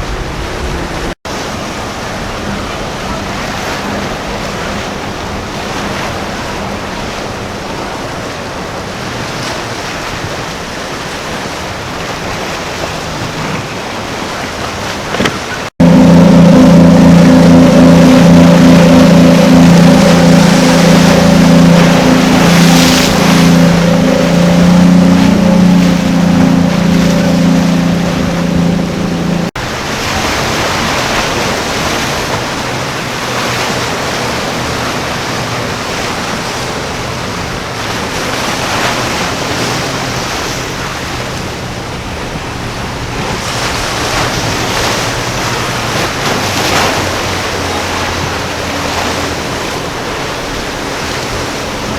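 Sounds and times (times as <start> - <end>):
powerboat engines droning: 0.0 - 51.9
surf and waves: 0.0 - 51.9
wind on microphone: 14.6 - 51.9.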